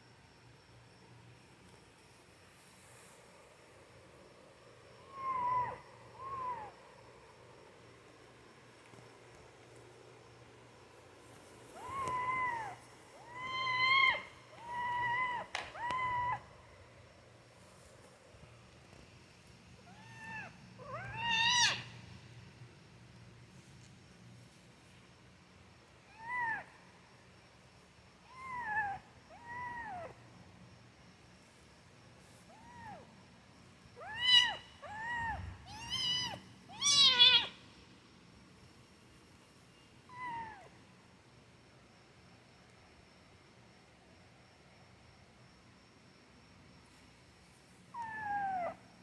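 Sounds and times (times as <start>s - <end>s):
kitten meowing: 11.8s - 16.4s, 34.0s - 37.6s.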